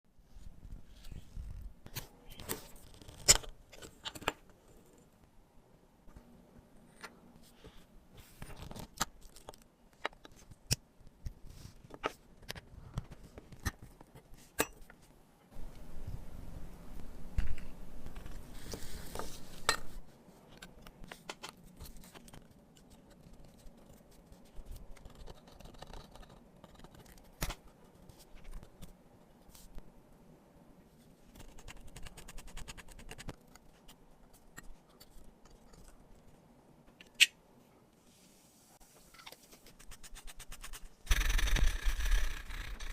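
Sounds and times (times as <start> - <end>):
steady scratching: 38.9 - 42.9.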